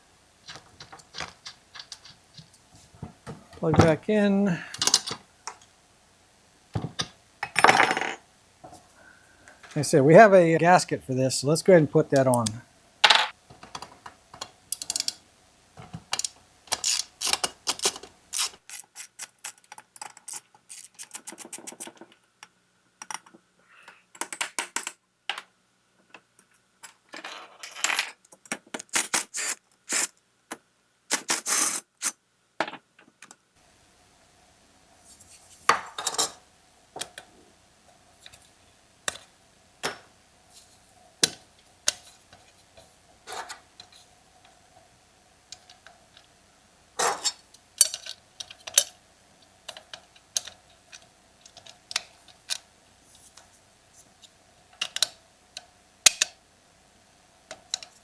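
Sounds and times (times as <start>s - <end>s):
metal tools clicking and clinking: 4.7s - 5.2s.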